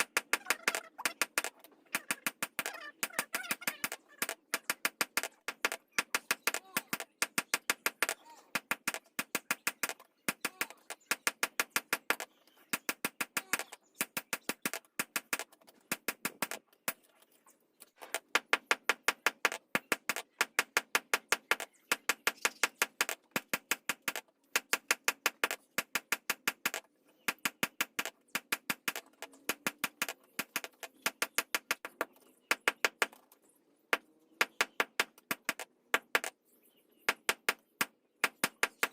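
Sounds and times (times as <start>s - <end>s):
hammer tapping: 0.0s - 16.6s, 37.1s - 38.9s.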